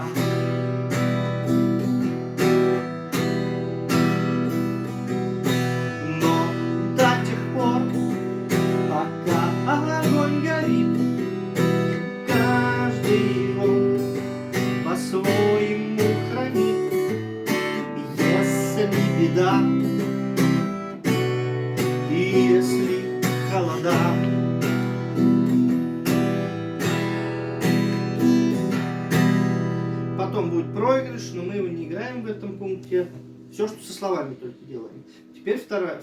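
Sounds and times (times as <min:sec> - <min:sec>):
man singing: 0:00.0 - 0:00.6, 0:05.8 - 0:20.1, 0:21.8 - 0:24.5
acoustic guitar strumming: 0:00.0 - 0:36.0.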